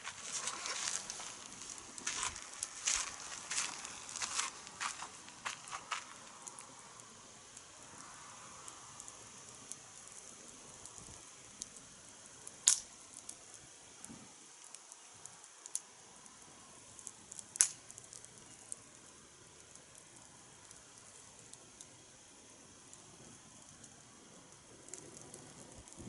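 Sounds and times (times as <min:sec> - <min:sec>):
wood fire crackling: 0:00.0 - 0:26.0
sharp pops: 0:12.6 - 0:12.9, 0:17.6 - 0:18.2.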